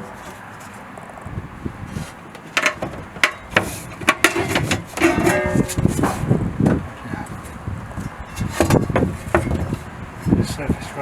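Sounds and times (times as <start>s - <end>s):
sharp knocks and clicks: 2.3s - 6.8s, 8.0s - 9.8s.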